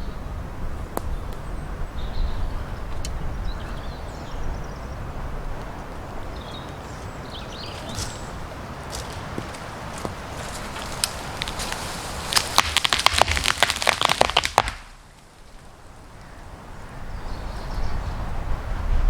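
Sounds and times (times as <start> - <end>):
low wind noise: 0.0 - 19.0
wood and branches cracking: 5.4 - 15.7.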